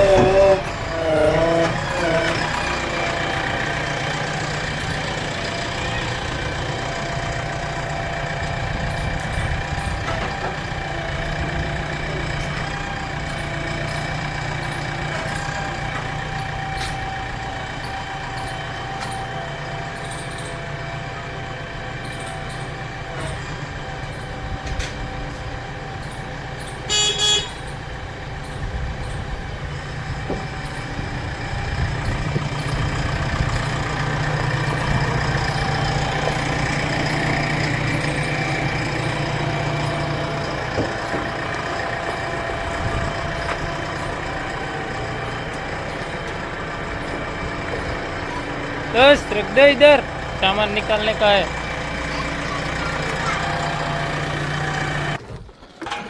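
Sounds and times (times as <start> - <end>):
horn toots: 0.0 - 3.4, 26.9 - 27.7
vehicle engine running: 0.0 - 55.2.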